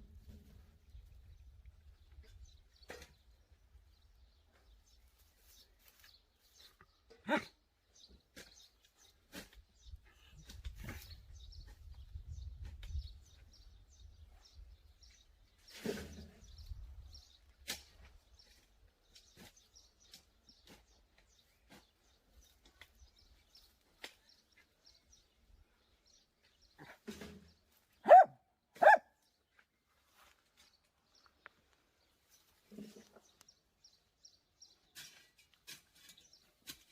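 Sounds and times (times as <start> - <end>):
dog barking: 28.0 - 29.1.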